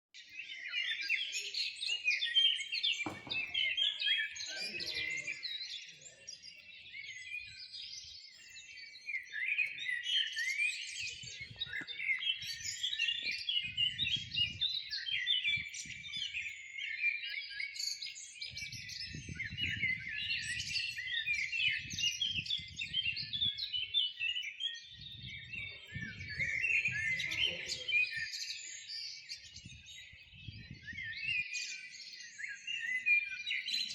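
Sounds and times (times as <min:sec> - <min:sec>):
chorus of small birds chirping: 0:00.2 - 0:33.9.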